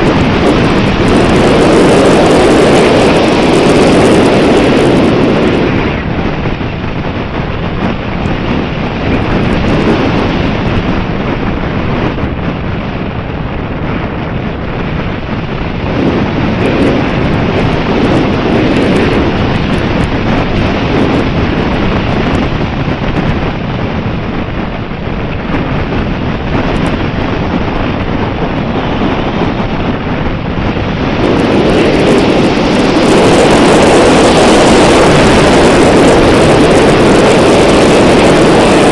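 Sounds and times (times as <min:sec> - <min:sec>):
strong wind buffeting microphone: 0:00.0 - 0:38.9.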